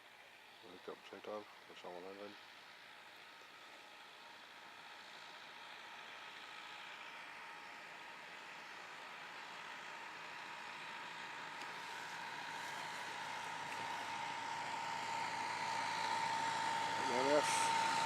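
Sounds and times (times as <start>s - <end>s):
tractor engine: 2.5s - 18.0s
steady whine: 11.6s - 18.0s.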